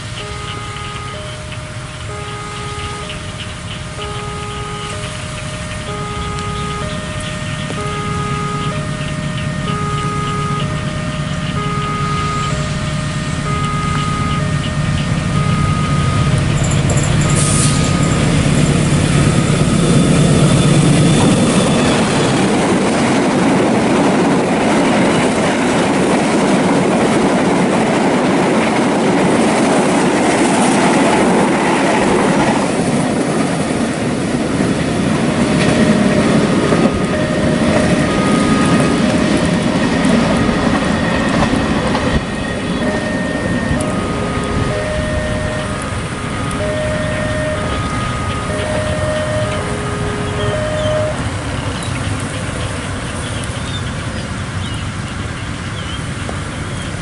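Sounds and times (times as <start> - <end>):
wheels squealing: 0.0 - 22.9, 35.0 - 57.0
locomotive engine rumbling: 0.0 - 57.0
rush of passing carriages: 0.0 - 57.0.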